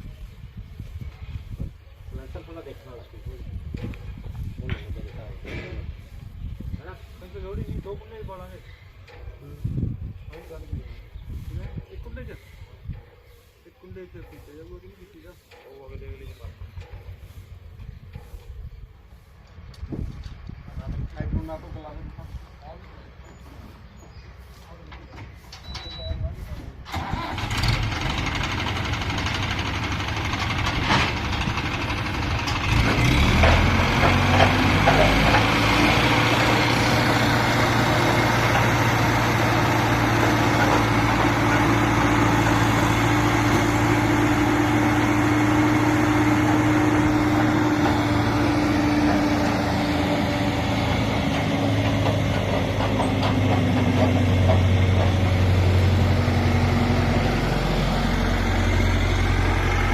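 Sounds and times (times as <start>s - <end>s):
diesel engine running: 24.8s - 59.9s.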